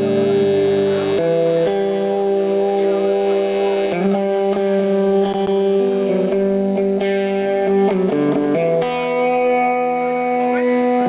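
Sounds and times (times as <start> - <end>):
distorted electric guitars: 0.0 - 11.0.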